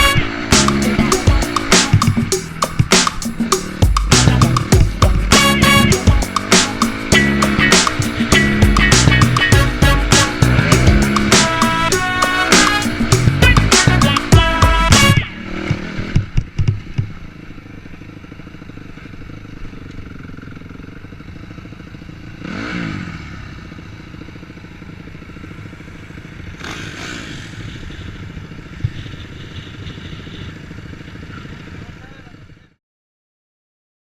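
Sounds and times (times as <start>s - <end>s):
music: 0.0s - 15.3s
dirt bike engine revving: 0.0s - 32.1s.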